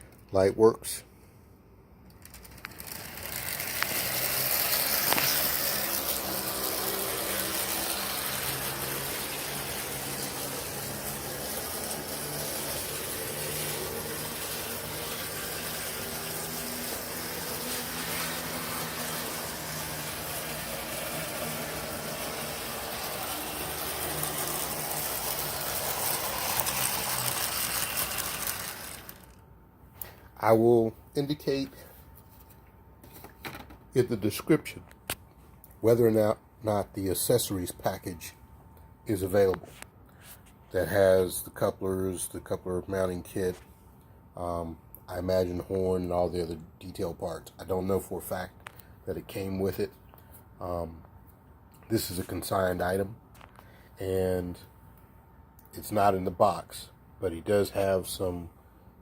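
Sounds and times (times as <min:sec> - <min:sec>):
model train motor whirring: 0:02.2 - 0:29.4
wheel rattle: 0:02.7 - 0:29.3.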